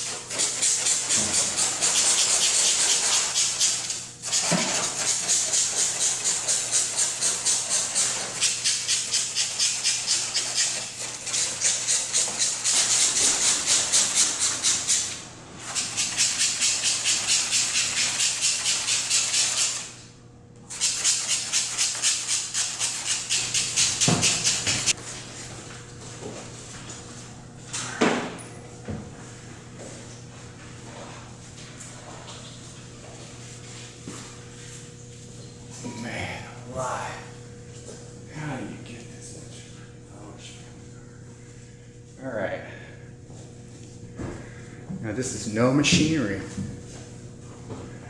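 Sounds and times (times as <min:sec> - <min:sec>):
tool scraping car paint: 0:00.0 - 0:20.0, 0:20.7 - 0:25.0.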